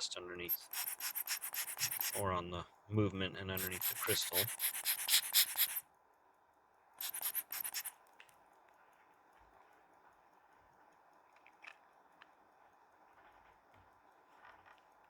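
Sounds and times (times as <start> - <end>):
hand air blower puffs: 0.4 - 2.2, 3.6 - 5.8, 7.0 - 7.9
faint small clicks: 7.9 - 15.0.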